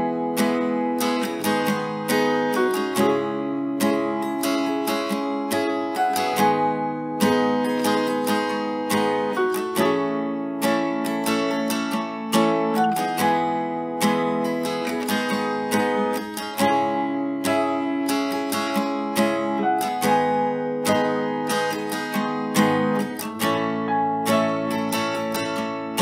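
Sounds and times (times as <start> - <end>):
acoustic guitar strumming chords: 0.0 - 26.0.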